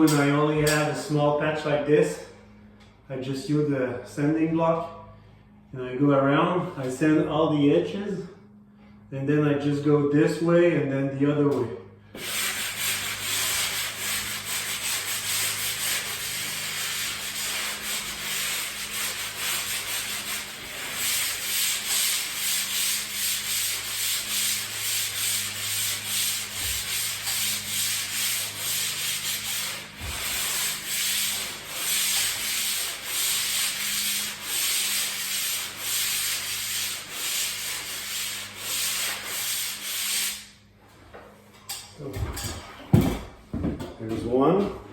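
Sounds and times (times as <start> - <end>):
sanding block scratching drywall: 12.2 - 40.6.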